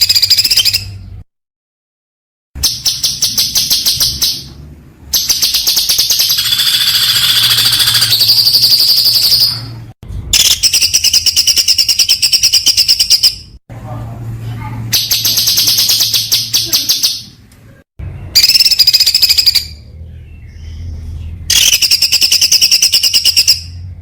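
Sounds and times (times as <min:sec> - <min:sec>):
songbird singing: 0:00.0 - 0:01.2, 0:02.6 - 0:13.6, 0:18.0 - 0:24.0.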